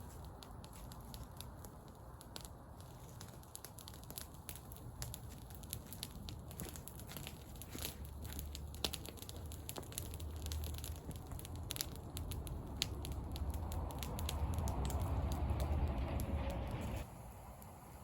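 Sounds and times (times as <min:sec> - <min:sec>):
sharp pops of fire: 0:00.0 - 0:17.8
campfire crackling: 0:00.0 - 0:18.0
low steady rumble: 0:00.0 - 0:18.0.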